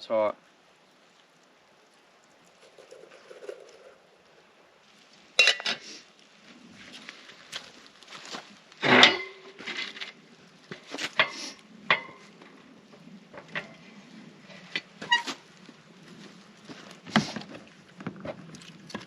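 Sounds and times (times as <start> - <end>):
metal cookware clinking and knocking: 5.4 - 5.8, 8.8 - 9.6, 11.2 - 12.3.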